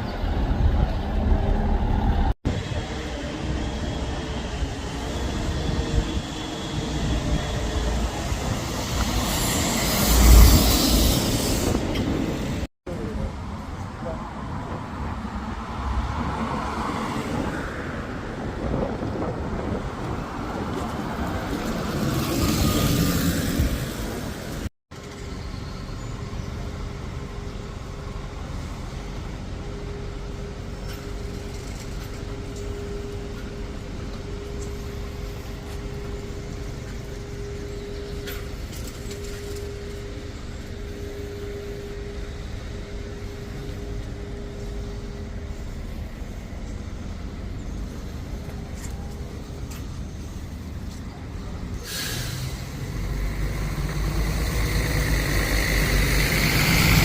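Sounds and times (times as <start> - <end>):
road traffic passing: 0.0 - 57.0
bus air brakes hissing: 51.7 - 53.9.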